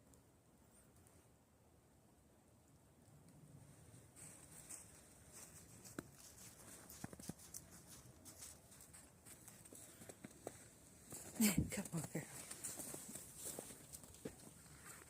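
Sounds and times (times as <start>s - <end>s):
footsteps in snow: 4.1s - 15.0s.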